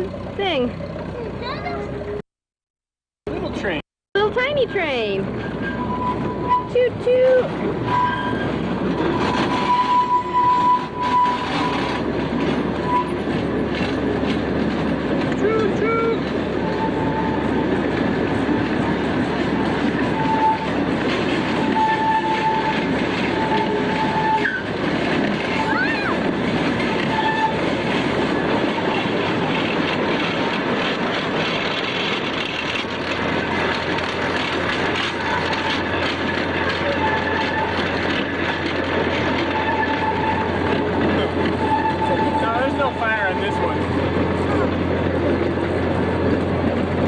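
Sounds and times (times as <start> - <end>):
small train wheels rumbling and clacking: 0.0 - 2.2, 3.2 - 47.0
high wheel squeal: 5.2 - 14.6, 15.4 - 29.5, 32.5 - 45.3.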